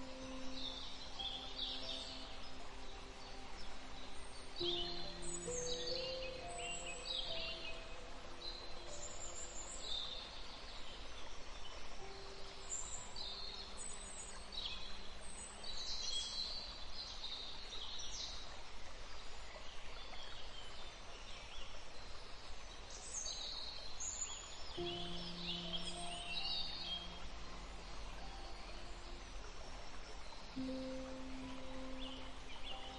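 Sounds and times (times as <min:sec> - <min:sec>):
birds chirping: 0:00.0 - 0:11.1, 0:24.7 - 0:32.9
steady hiss: 0:00.0 - 0:32.9
faint low held tones: 0:24.8 - 0:32.9.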